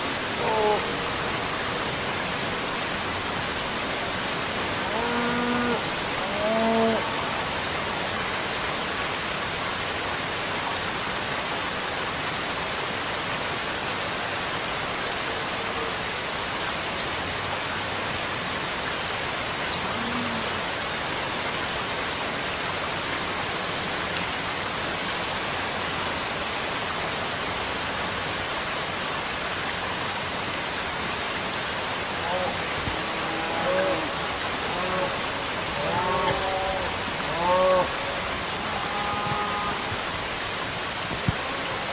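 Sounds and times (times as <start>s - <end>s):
steady rainfall: 0.0s - 41.9s.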